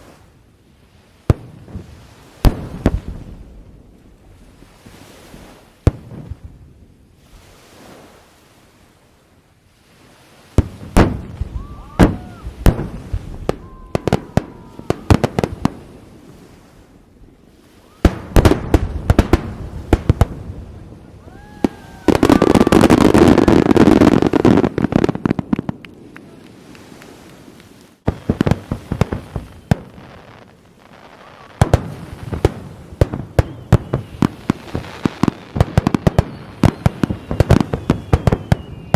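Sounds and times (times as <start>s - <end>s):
fireworks bangs: 1.3s - 3.5s, 10.5s - 16.4s, 17.8s - 38.9s.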